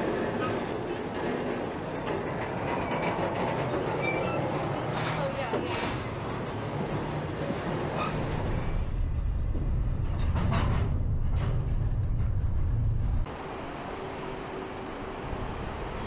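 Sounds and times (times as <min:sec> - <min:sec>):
freight train rumbling: 0:00.0 - 0:16.0.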